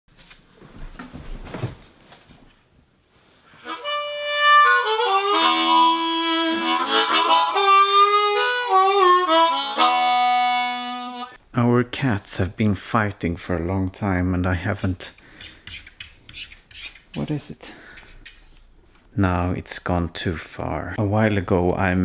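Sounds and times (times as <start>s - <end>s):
harmonica melody with chords: 3.6s - 11.4s.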